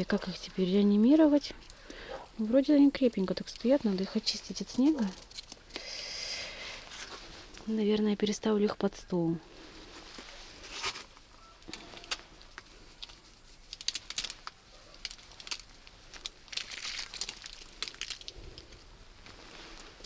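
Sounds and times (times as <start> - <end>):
snow crunching: 18.6 - 20.0.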